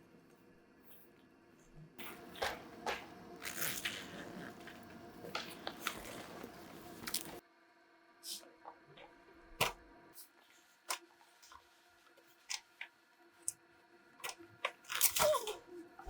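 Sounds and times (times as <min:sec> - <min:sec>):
faint steady hum: 0:00.0 - 0:16.0
small objects clicking and tapping: 0:02.0 - 0:07.4.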